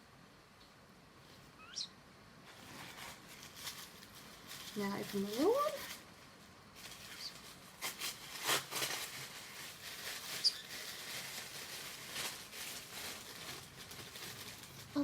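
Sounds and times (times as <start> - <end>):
bird chirp: 1.6 - 2.0, 10.4 - 10.7
paper rustling and crinkling: 2.5 - 15.0.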